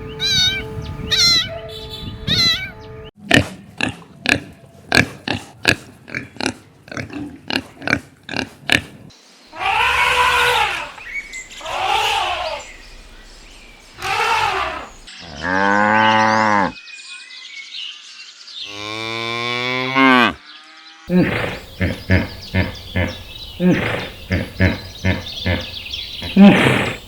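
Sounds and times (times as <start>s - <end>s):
cat meowing: 0.2s - 1.5s, 2.3s - 2.8s
pig grunts: 3.2s - 9.8s, 21.1s - 27.0s.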